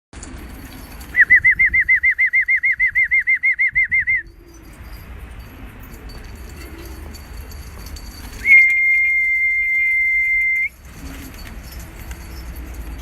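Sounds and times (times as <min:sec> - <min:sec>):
warbling whistle: 0:01.1 - 0:04.7, 0:08.4 - 0:10.8.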